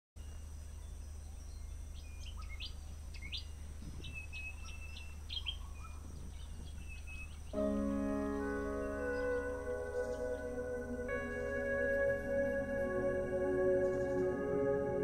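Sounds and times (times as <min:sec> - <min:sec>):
birds chirping: 0:00.2 - 0:15.0
low hum: 0:07.6 - 0:15.0.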